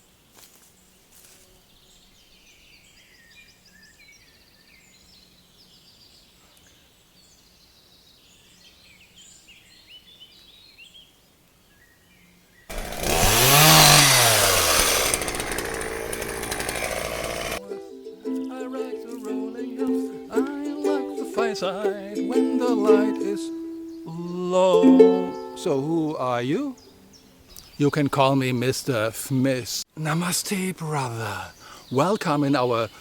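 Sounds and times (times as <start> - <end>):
small birds chirping: 0.0 - 17.6, 25.3 - 29.1, 30.8 - 33.0
chainsaw running and revving: 12.7 - 17.6.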